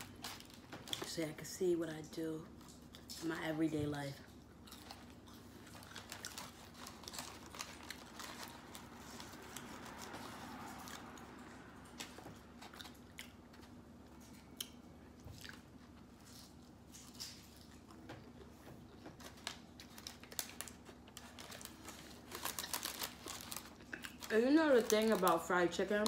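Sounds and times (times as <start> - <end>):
faint steady hum: 0.0 - 26.0
person chewing crunchy food: 4.3 - 24.3.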